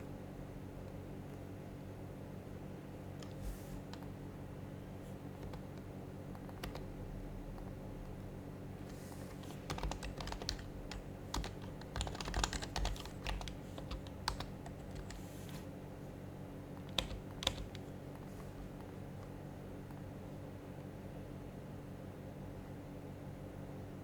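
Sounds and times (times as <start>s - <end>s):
keyboard typing: 3.2s - 4.1s, 5.4s - 6.9s, 9.2s - 15.6s, 16.7s - 18.2s.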